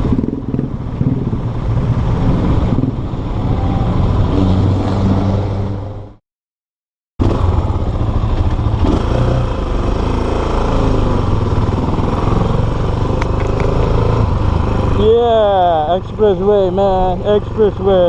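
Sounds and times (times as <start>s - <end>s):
motorcycle engine running: 0.0s - 3.0s, 7.2s - 18.0s
road noise: 0.0s - 6.2s, 7.2s - 18.0s.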